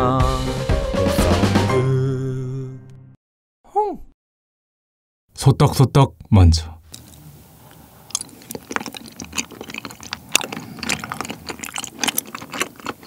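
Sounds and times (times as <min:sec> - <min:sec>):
wet chewing clicks and squishes: 0:06.9 - 0:13.0.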